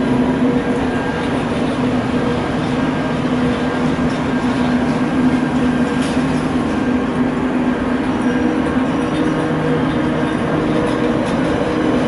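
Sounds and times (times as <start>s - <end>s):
train electric hum: 0.0s - 12.0s
train wheels rumbling on rails: 0.0s - 12.0s.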